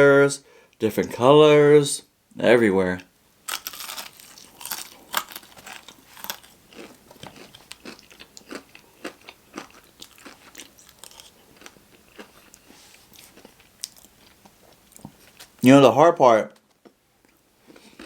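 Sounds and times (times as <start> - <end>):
person chewing crunchy food: 3.5 - 15.6, 16.6 - 18.0.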